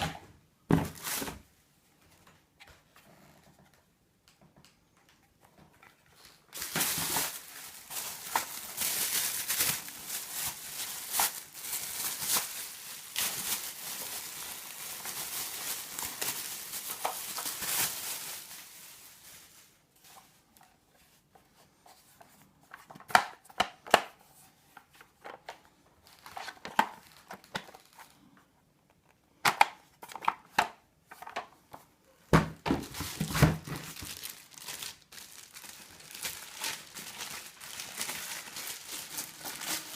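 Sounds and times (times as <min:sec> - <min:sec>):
packaging crinkling: 0:05.8 - 0:20.2, 0:26.0 - 0:28.2, 0:32.8 - 0:39.9.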